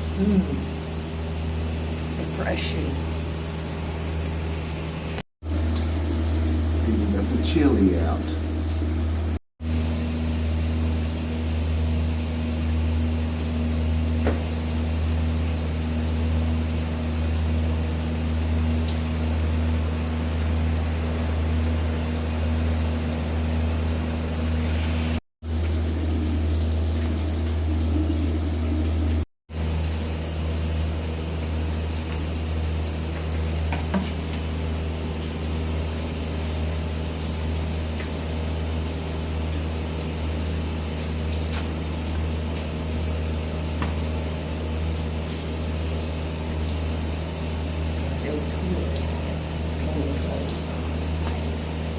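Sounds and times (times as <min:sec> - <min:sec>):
shower water spraying: 0:00.0 - 0:51.9
low hum: 0:24.4 - 0:29.2.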